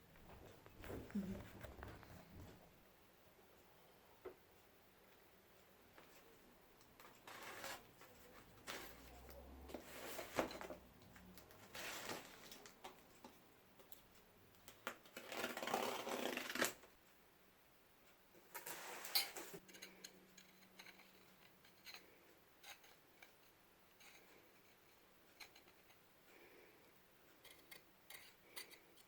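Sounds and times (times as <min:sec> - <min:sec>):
rustling and scraping: 0:00.0 - 0:02.7, 0:07.0 - 0:13.4, 0:18.4 - 0:26.0.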